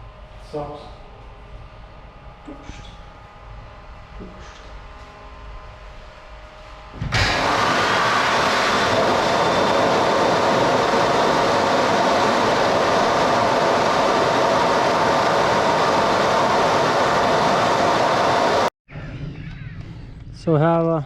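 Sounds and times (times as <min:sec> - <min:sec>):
electric hand dryer blowing: 0:06.9 - 0:18.7.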